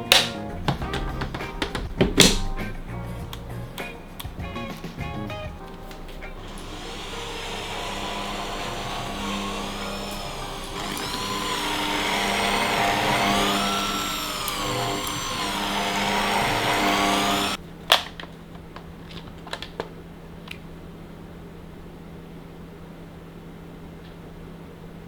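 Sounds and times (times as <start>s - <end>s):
sharp clicks and knocks: 0.0s - 19.9s
small electric motor running: 6.4s - 17.6s.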